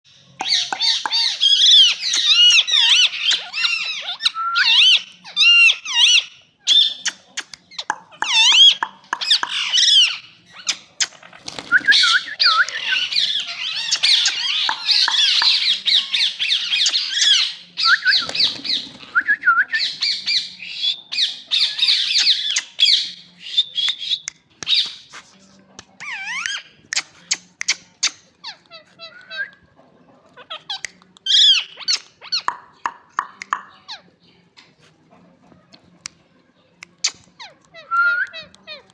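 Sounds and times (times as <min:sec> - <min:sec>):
parakeets squawking and chattering: 0:00.1 - 0:25.3, 0:26.0 - 0:29.4, 0:30.2 - 0:34.8.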